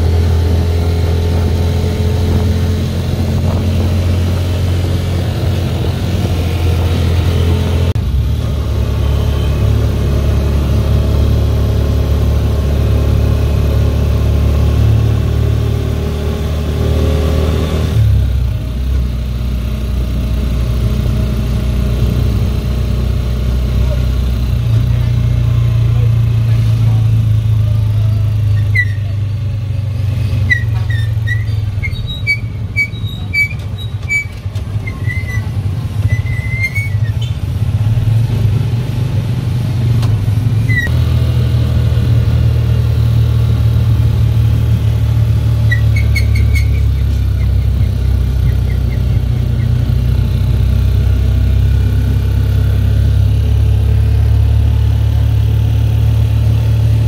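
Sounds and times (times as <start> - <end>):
motorcycle engine droning: 0.0 - 57.0
short high squeaks: 28.5 - 29.2, 30.3 - 37.5, 40.6 - 41.0, 45.5 - 50.1.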